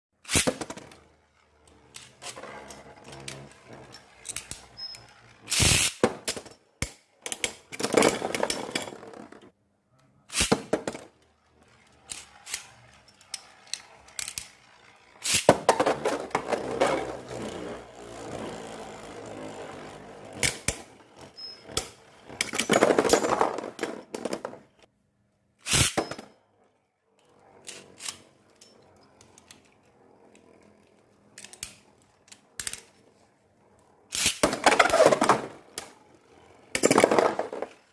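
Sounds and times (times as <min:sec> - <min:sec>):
spinning tops rattling and scraping: 0:00.2 - 0:09.6, 0:10.3 - 0:24.9, 0:25.6 - 0:26.3, 0:27.3 - 0:37.9
spinning tops clacking: 0:10.3 - 0:24.6.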